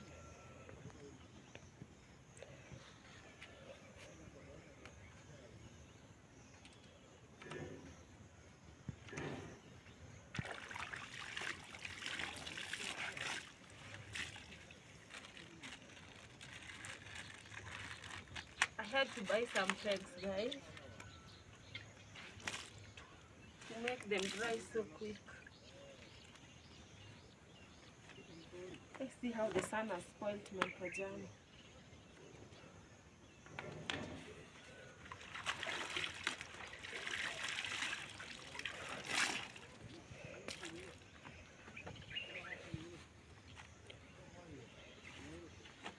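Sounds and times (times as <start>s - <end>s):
water trickling and splashing: 10.2s - 21.0s, 21.6s - 26.9s, 34.8s - 44.2s.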